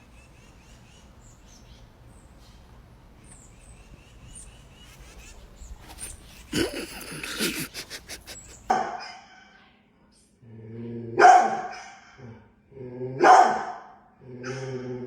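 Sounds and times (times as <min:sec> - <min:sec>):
dog growling: 0:05.8 - 0:08.7
dog barking: 0:11.2 - 0:12.2, 0:13.2 - 0:15.0.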